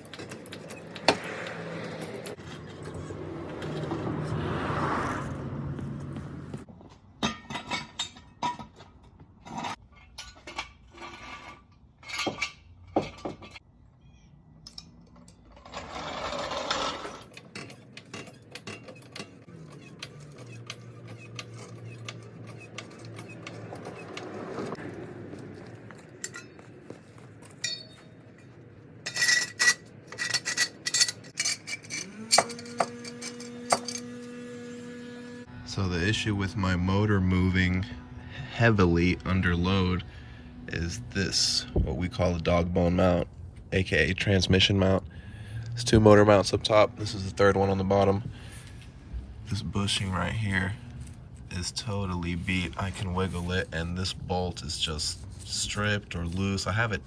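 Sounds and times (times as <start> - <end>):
metal tools clinking: 0.0 - 3.9, 7.2 - 13.6, 14.6 - 34.3, 45.9 - 57.0
scraping: 0.0 - 13.6, 14.7 - 34.2, 45.4 - 57.0.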